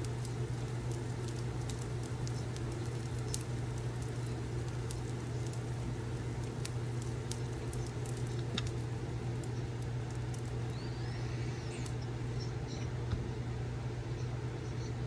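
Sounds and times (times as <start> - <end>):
wood fire crackling: 0.0 - 12.6
steady low hum: 0.0 - 15.0.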